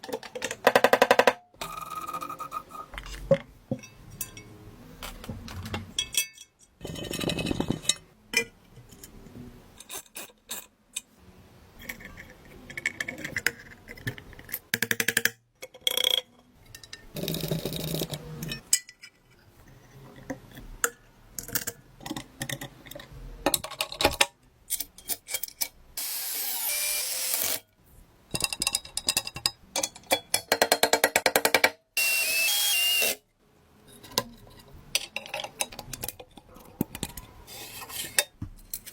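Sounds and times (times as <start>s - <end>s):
power tool running: 26.0s - 27.6s, 32.0s - 33.2s.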